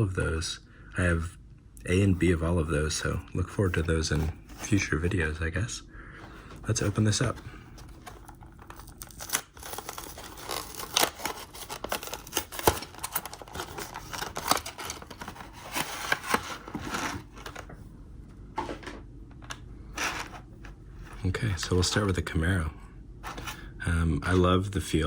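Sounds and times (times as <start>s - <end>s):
plastic packaging crackling: 7.1s - 17.7s.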